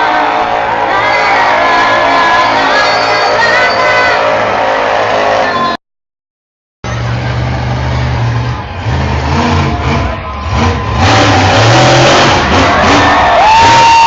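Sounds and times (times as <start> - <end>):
large engine revving: 6.8 - 14.0.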